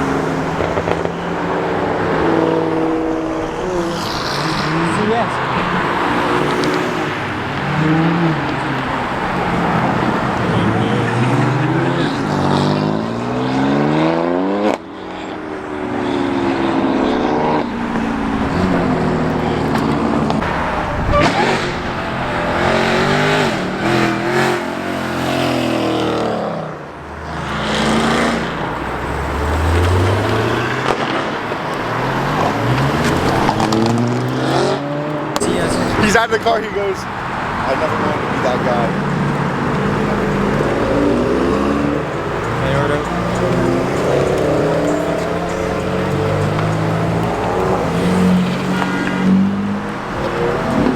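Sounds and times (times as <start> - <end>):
background voices: 0.0 - 13.1, 35.4 - 50.9
car engines revving: 0.0 - 50.9.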